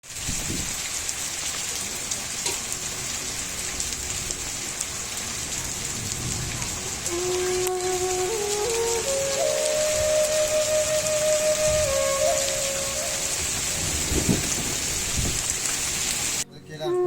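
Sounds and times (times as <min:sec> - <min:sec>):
raindrops ticking: 0:00.0 - 0:16.4
steady rain falling: 0:00.0 - 0:16.5
slow flute-like tune: 0:07.0 - 0:14.5, 0:16.5 - 0:17.0.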